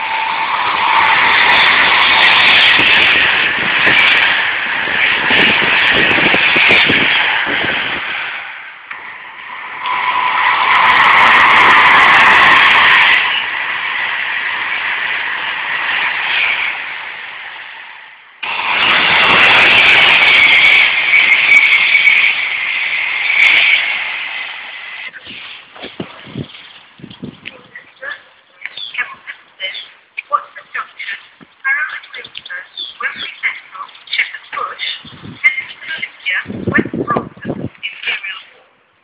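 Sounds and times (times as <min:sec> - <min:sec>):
train rushing past at speed: 0:00.0 - 0:26.6.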